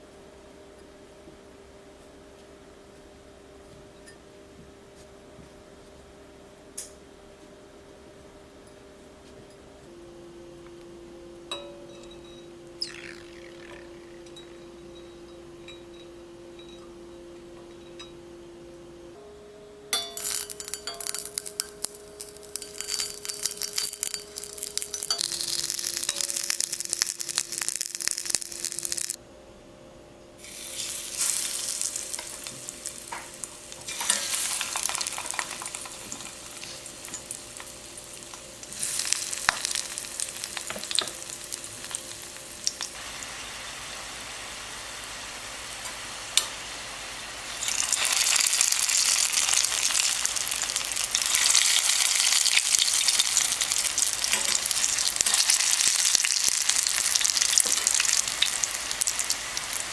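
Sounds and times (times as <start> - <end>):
pancake batter sizzling: 20.0 - 29.2, 30.4 - 59.9.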